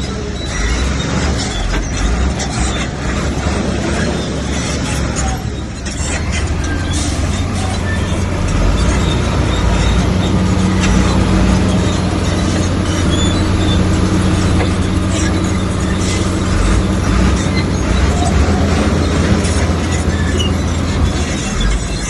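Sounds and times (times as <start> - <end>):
bulldozer diesel engine: 0.0 - 22.0
metal clanks and scrapes: 0.0 - 22.0.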